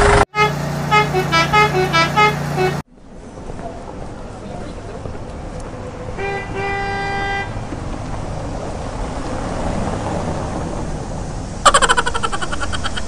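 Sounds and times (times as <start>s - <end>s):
vehicle horn honking: 0.0s - 2.8s, 6.2s - 7.6s
steady rushing noise: 7.4s - 13.0s.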